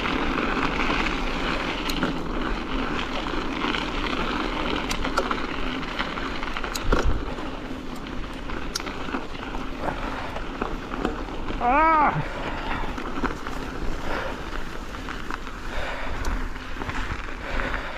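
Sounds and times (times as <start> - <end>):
small clicks: 6.6 - 7.2.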